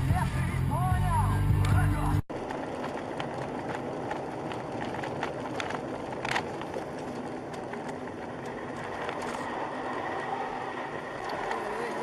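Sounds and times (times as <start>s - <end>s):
car driving: 0.0s - 12.0s.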